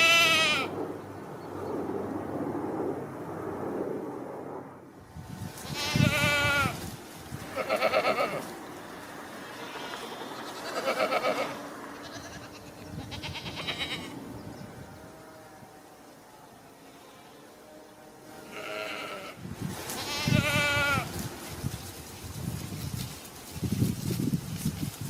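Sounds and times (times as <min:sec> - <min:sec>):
goats or sheep bleating: 0:00.0 - 0:00.7, 0:05.6 - 0:06.8, 0:07.5 - 0:08.5, 0:09.6 - 0:14.2, 0:18.4 - 0:21.2.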